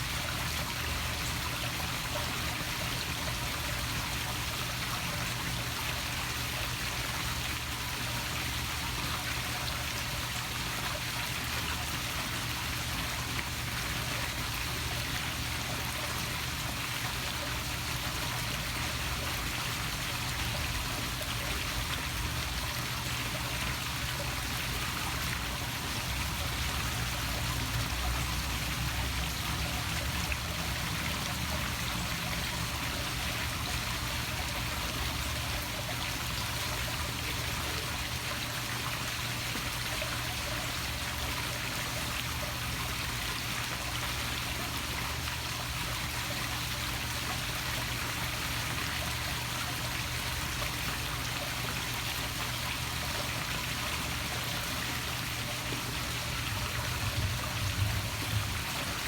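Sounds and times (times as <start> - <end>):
waterfall splashing into pool: 0.0 - 59.0
low churning rumble: 56.2 - 59.0.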